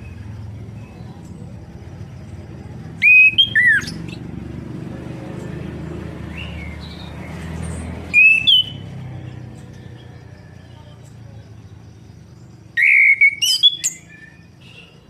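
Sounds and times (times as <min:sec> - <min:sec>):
bird whistling phrase: 0:03.0 - 0:04.1, 0:08.1 - 0:08.8, 0:12.7 - 0:14.8
faint bird chirps: 0:06.3 - 0:15.0.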